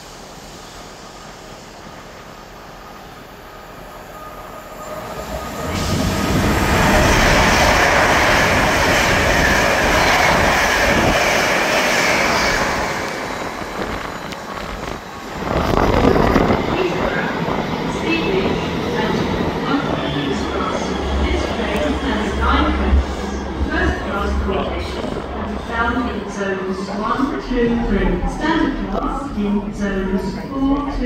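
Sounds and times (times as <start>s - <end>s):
express train passing at speed: 0.0s - 31.0s.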